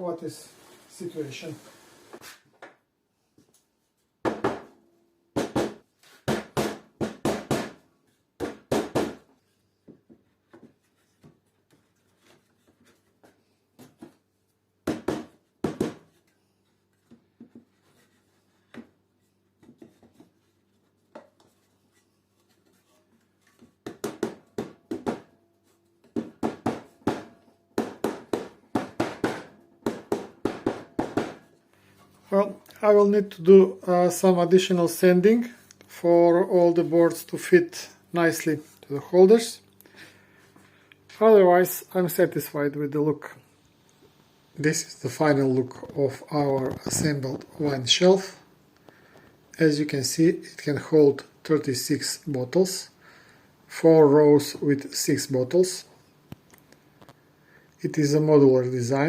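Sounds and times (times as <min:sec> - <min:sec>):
wooden boards knocking: 0:04.2 - 0:04.7, 0:26.1 - 0:31.5.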